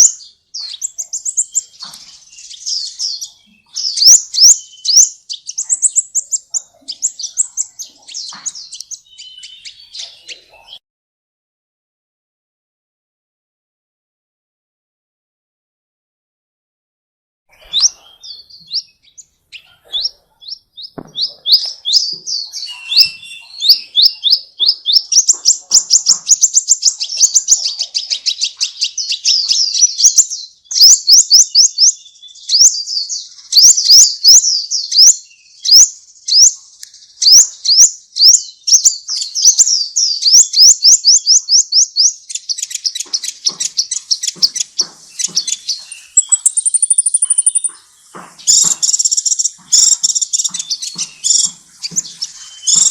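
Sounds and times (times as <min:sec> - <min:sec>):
songbird chirping: 0:00.0 - 0:10.8, 0:17.5 - 0:52.9.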